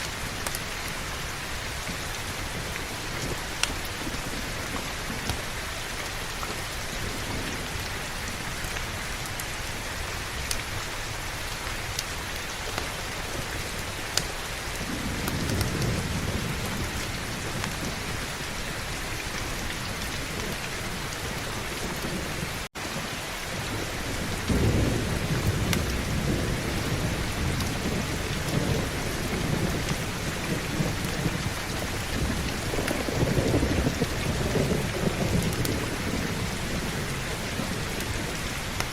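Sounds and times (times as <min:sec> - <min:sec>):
heavy rain: 0:00.0 - 0:38.9
thunder rumbling: 0:00.0 - 0:38.9.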